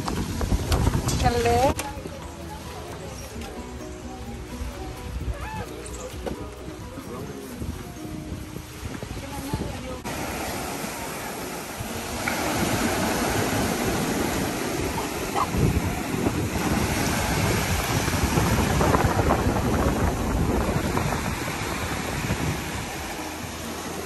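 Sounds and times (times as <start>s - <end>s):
wind buffeting the microphone: 0.0s - 1.8s, 5.0s - 23.2s
surf breaking on a beach: 7.4s - 24.0s.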